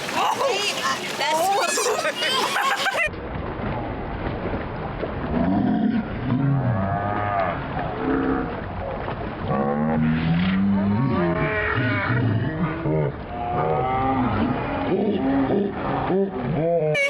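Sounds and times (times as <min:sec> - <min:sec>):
people yelling: 0:00.0 - 0:03.1
surf rushing: 0:00.0 - 0:03.4.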